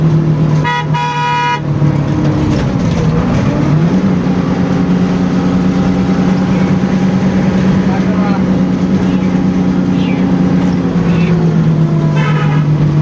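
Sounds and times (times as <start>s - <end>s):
bus engine running: 0.0s - 13.0s
road noise: 0.0s - 13.0s
vehicle horn honking: 0.6s - 1.7s, 12.0s - 13.0s.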